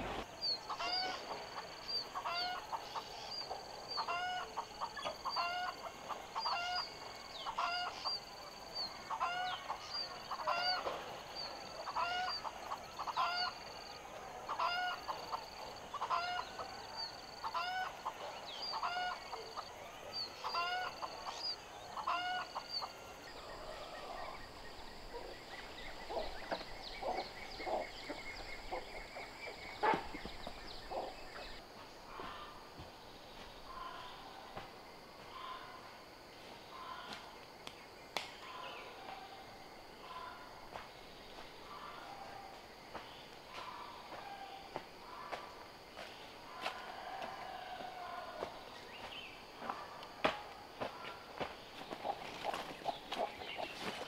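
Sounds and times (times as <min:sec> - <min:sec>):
bird calling: 0:14.5 - 0:32.6, 0:33.6 - 0:34.5.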